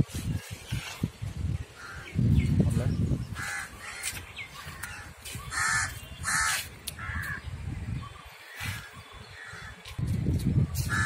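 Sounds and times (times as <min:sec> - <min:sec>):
bird giving harsh calls: 0:03.3 - 0:07.4.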